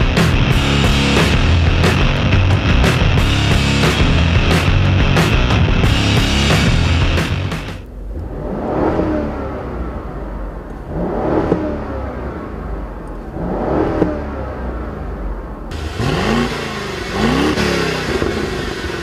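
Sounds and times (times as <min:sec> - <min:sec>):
car engine accelerating hard: 0:00.0 - 0:19.0
wind and tyre noise: 0:07.8 - 0:19.0.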